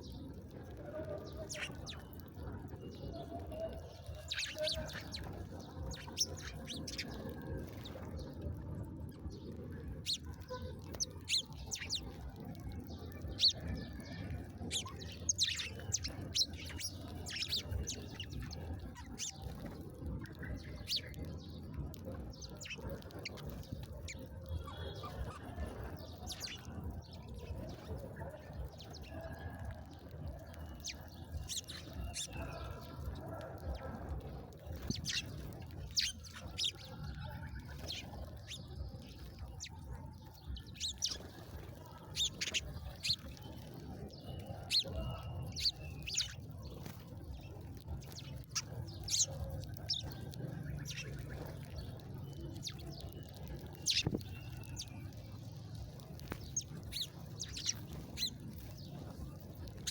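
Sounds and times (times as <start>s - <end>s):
small birds chirping: 0.0s - 59.9s
steady low rumble: 4.2s - 29.2s, 40.4s - 59.9s.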